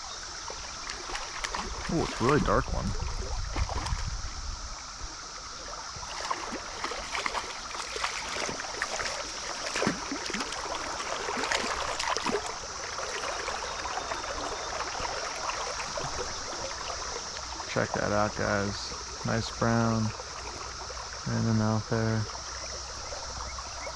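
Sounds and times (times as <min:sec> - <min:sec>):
small splashes: 0:00.0 - 0:04.3, 0:05.3 - 0:23.9
stream water running: 0:00.0 - 0:23.9.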